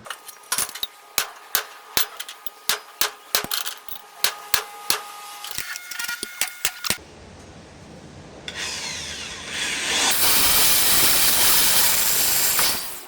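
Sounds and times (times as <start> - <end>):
hammer tapping on metal: 0.0 - 7.0.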